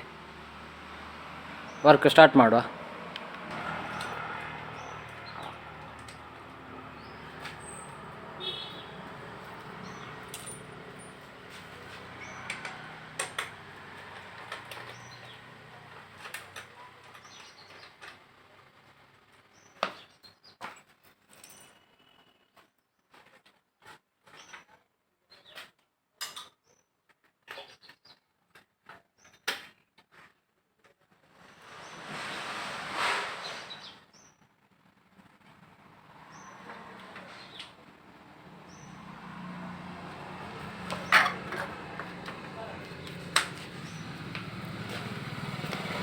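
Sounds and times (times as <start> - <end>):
sharp clicks and small knocks: 12.5 - 13.6.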